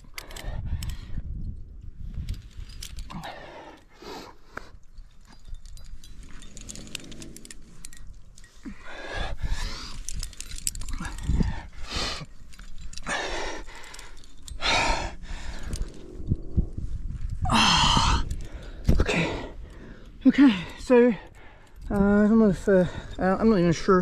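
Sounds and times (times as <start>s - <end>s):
climbing gear clicking: 0.0s - 24.0s
person breathing hard and panting: 8.6s - 16.7s.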